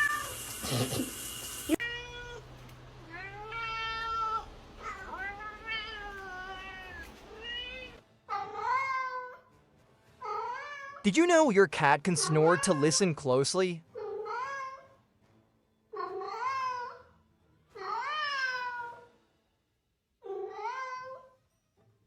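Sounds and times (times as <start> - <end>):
cat meowing: 1.7 - 2.5, 3.1 - 9.3, 16.0 - 17.0.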